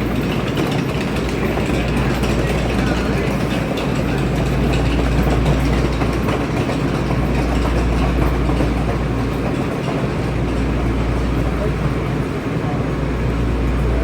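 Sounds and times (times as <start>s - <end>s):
metro train running: 0.0s - 14.0s.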